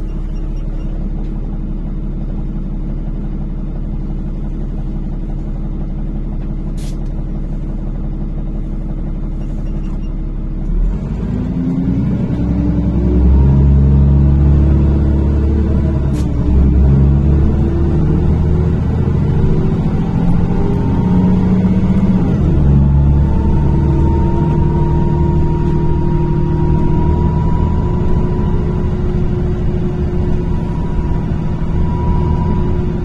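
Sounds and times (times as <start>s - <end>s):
bus engine revving: 10.6s - 33.0s.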